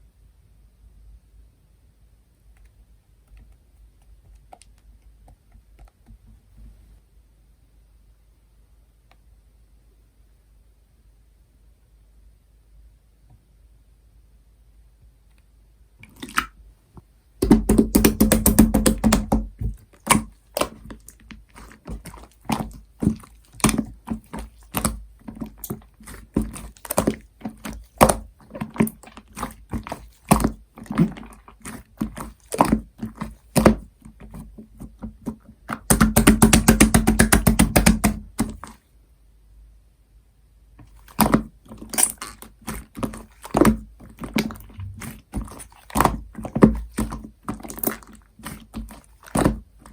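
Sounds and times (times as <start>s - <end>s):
slime squishing with sticky clicks: 16.0s - 16.6s, 17.4s - 38.8s, 40.8s - 49.9s.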